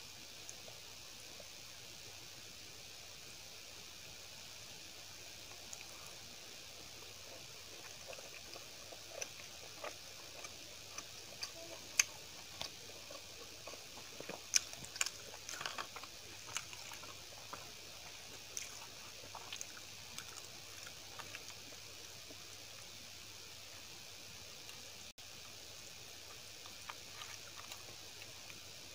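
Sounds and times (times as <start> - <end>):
steady background hiss: 0.0 - 28.9
close chewing: 5.3 - 23.1, 24.7 - 28.9.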